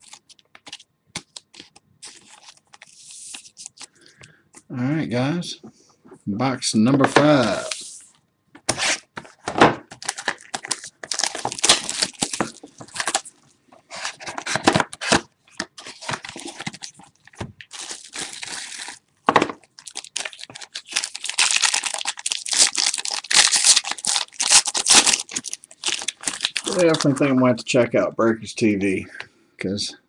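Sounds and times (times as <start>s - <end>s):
packaging tearing: 0.0s - 3.9s, 10.0s - 13.3s, 13.9s - 19.0s, 19.7s - 27.2s
wrapper crinkling: 9.9s - 19.0s, 19.6s - 27.3s.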